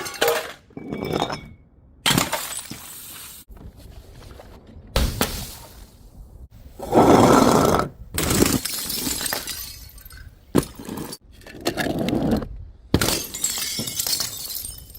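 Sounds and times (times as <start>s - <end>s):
glass bottles smashing: 0.0s - 3.2s, 8.3s - 11.2s, 13.0s - 14.9s.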